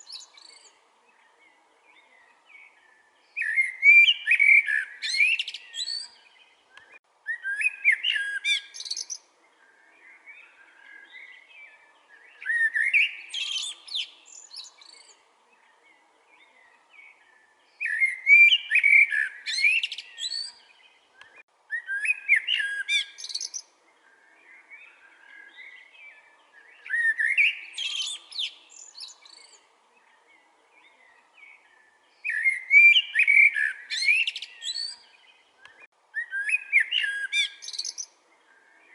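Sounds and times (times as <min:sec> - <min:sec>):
blackbird singing: 0:00.0 - 0:38.9.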